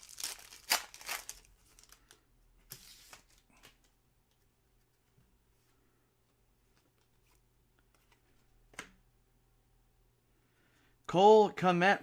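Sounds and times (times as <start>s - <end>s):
wrapper crinkling and tearing: 0.0s - 2.2s
wrapper rustle: 0.0s - 2.2s.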